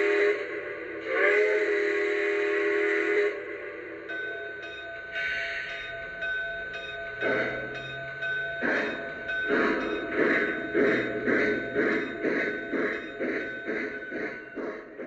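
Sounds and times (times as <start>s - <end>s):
model steam locomotive chuffs: 0.0s - 15.0s
steady high tone: 3.4s - 15.0s.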